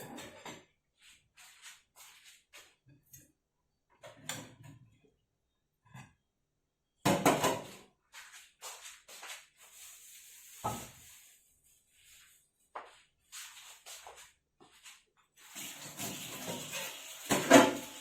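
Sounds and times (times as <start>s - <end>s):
kitchen handling knocks and clatters: 0.0s - 0.7s, 7.0s - 7.8s, 15.9s - 18.0s.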